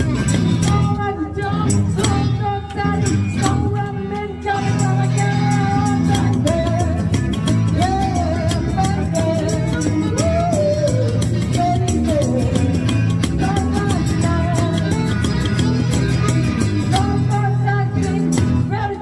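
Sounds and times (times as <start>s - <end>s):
rockabilly band playing live: 0.0s - 19.0s
driving drum beat: 4.6s - 17.4s.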